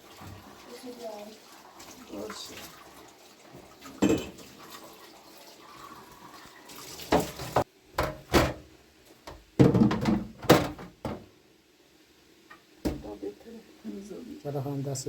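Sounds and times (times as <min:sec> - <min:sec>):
water running and splashing: 0:00.0 - 0:07.7
dishes knocking and clattering: 0:04.0 - 0:04.5, 0:07.1 - 0:08.6, 0:09.3 - 0:11.3.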